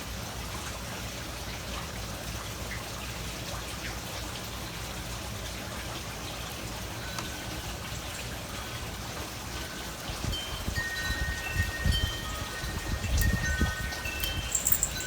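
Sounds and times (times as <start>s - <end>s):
faint wind chime notes: 8.6s - 15.0s.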